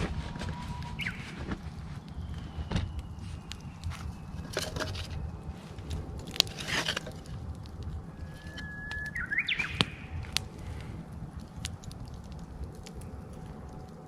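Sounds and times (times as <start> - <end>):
bird singing: 0.0 - 6.2, 7.3 - 10.5
campfire crackling and popping: 0.0 - 14.0.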